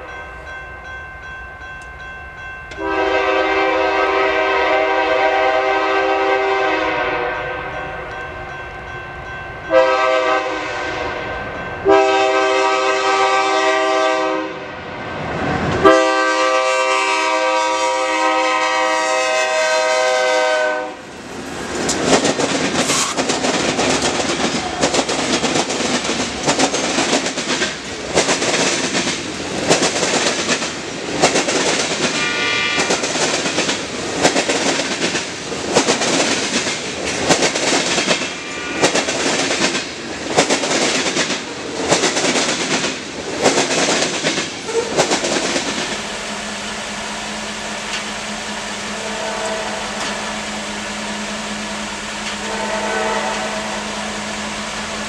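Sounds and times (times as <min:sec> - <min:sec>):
locomotive horn blasts: 0:02.8 - 0:08.0, 0:09.7 - 0:14.8, 0:15.8 - 0:21.0, 0:32.2 - 0:33.0, 0:48.9 - 0:50.3, 0:52.3 - 0:54.4
train wheels clattering on rails: 0:21.1 - 0:46.3, 0:47.4 - 0:48.2, 0:51.7 - 0:52.6.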